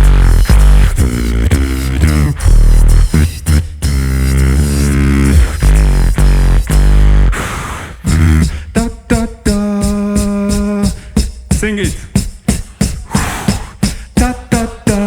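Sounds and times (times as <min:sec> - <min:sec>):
vocal beatboxing: 0:00.0 - 0:15.0.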